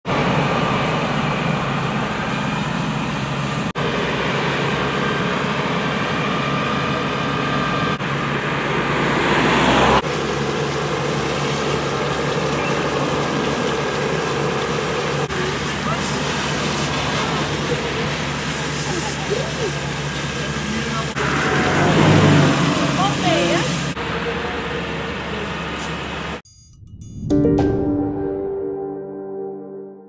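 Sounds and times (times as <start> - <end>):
vehicle engine humming: 0.0 - 26.4
hiss: 10.1 - 21.8.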